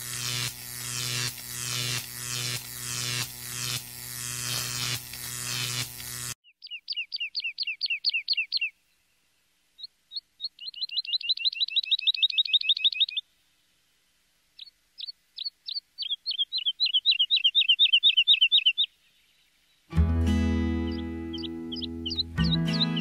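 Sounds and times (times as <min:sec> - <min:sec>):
bird trilling chirps: 0:06.4 - 0:08.8, 0:09.8 - 0:13.2, 0:14.6 - 0:19.0, 0:20.8 - 0:23.0.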